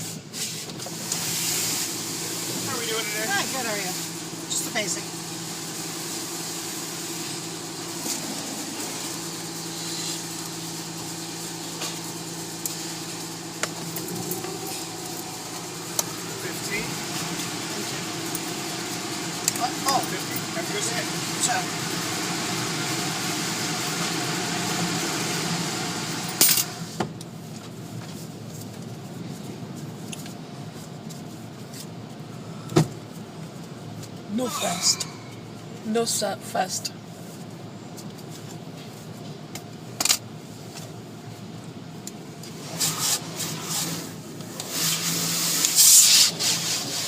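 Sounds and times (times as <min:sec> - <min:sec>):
washing and rubbing hiss: 0:00.0 - 0:26.0, 0:42.5 - 0:47.0
car idling: 0:00.9 - 0:25.0.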